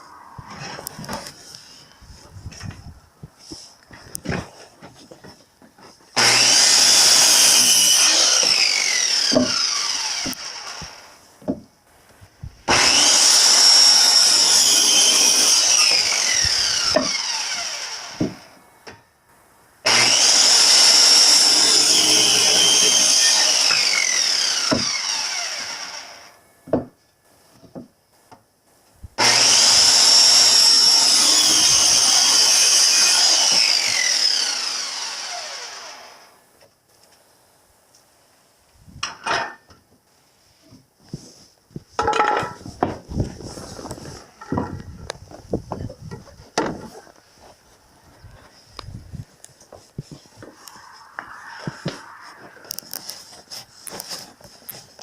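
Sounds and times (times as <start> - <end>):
electric saw cutting wood: 6.2 - 11.2, 12.7 - 18.6, 19.8 - 26.4, 29.2 - 36.4, 50.4 - 54.8.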